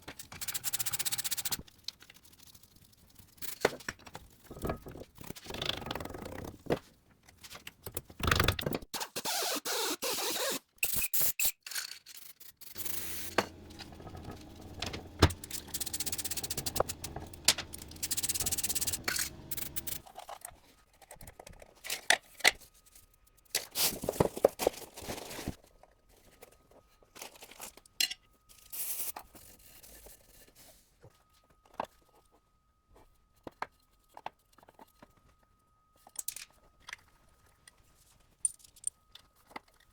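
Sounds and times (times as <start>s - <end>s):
metal parts scraping and clinking: 10.8s - 20.3s, 38.4s - 39.8s
steady hum with hiss: 12.8s - 20.0s.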